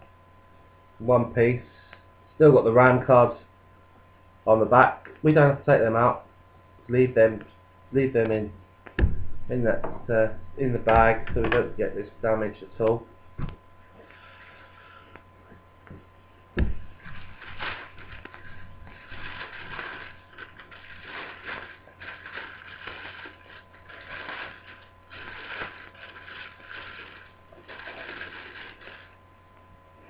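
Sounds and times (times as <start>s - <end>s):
plastic bag crinkling: 16.7s - 29.2s.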